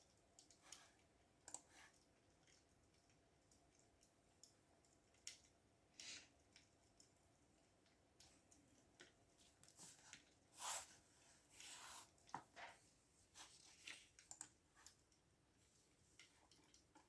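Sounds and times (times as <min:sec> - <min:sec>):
computer keyboard typing: 0:00.0 - 0:05.6, 0:14.2 - 0:15.0.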